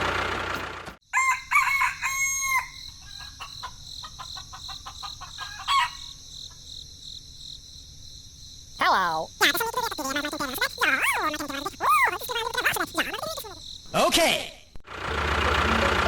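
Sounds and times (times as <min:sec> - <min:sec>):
rooster crowing: 0:01.1 - 0:03.7, 0:04.3 - 0:06.2
chickens clucking: 0:03.0 - 0:06.0, 0:08.8 - 0:13.6.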